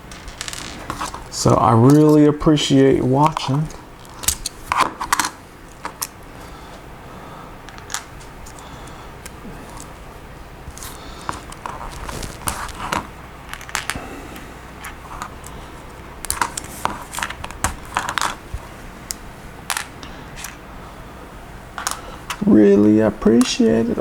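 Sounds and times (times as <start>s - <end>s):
plastic pieces clicking: 0.0s - 2.2s, 10.7s - 14.0s, 16.2s - 18.4s.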